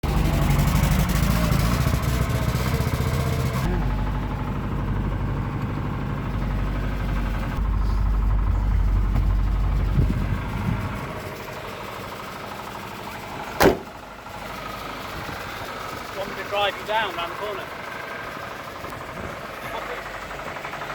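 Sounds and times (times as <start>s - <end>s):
car engine running: 0.0s - 20.9s
sharp knock: 13.6s - 13.9s.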